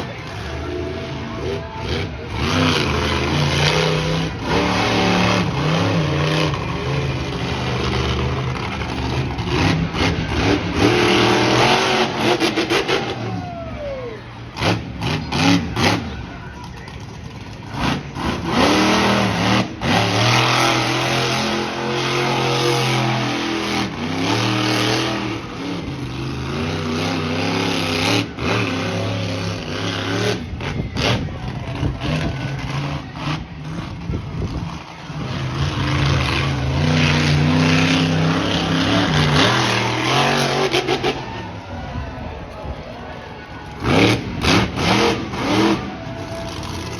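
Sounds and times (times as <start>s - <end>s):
monster truck engine revving: 0.0s - 46.9s.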